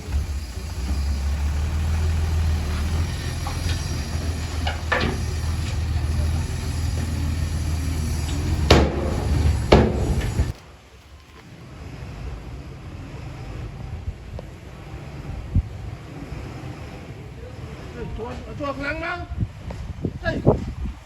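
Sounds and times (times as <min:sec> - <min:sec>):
diesel engine running under load: 0:00.0 - 0:21.0
sharp knocks: 0:08.6 - 0:10.6.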